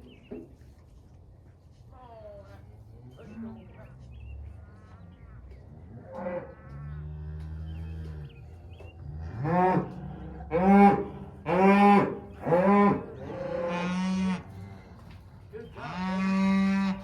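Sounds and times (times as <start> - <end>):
cattle mooing: 9.0 - 17.0.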